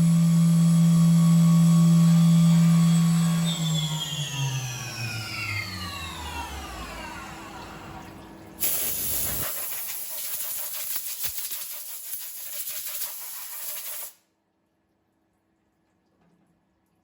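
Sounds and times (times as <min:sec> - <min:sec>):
mill spindle whine winding down: 0:00.0 - 0:08.4
loud hiss: 0:08.6 - 0:14.2.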